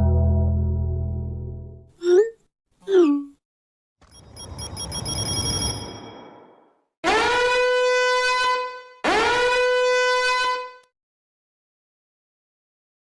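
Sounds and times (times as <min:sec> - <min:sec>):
horn-like blasts: 0:07.1 - 0:10.8.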